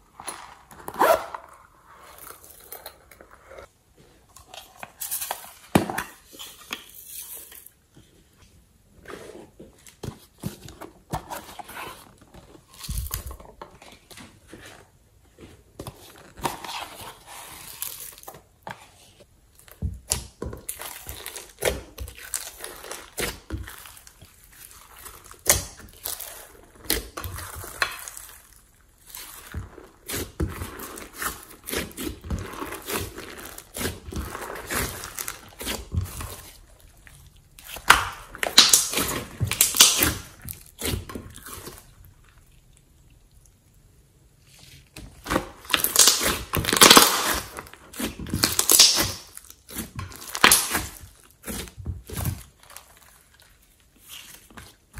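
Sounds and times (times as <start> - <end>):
slime squished by hand: 19.6 - 42.6, 45.1 - 54.9.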